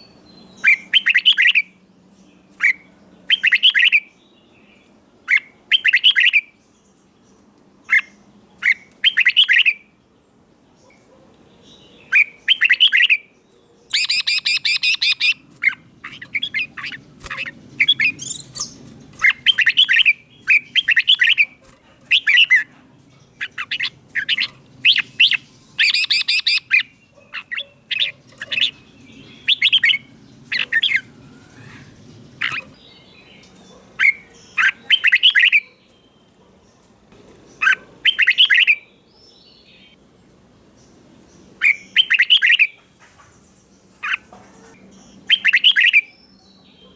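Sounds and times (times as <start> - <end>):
bird singing warbling whistles: 0.0 - 1.7, 3.3 - 4.1, 8.7 - 9.8, 12.1 - 13.2, 13.9 - 15.4, 16.1 - 21.5, 23.4 - 26.9, 29.3 - 31.8, 34.0 - 35.7, 37.6 - 38.8, 41.6 - 42.8, 45.3 - 46.2.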